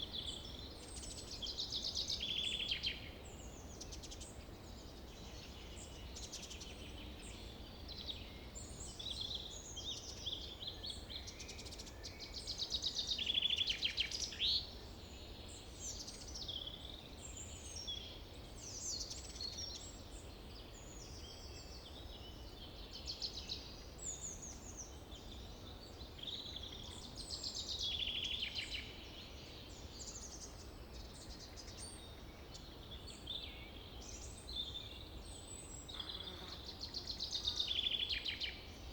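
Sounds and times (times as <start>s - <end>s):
songbirds chirping and calling: 0.0s - 38.9s.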